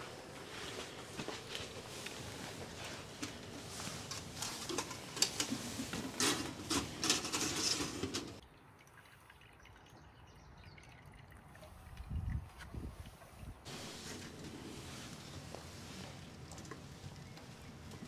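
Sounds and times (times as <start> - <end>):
water dripping and splashing: 8.4 - 13.6.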